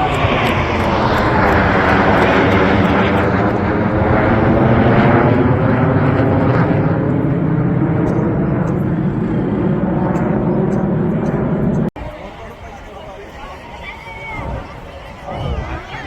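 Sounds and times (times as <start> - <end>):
low-flying aircraft engine: 0.0 - 12.2.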